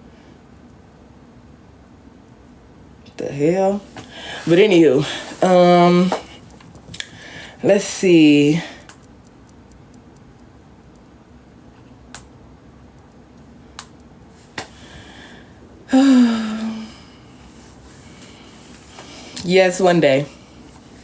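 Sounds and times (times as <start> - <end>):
light sharp clicks: 6.1 - 7.2, 8.8 - 11.1, 11.8 - 12.3, 13.1 - 14.8
short vocal sound from person: 15.9 - 17.0.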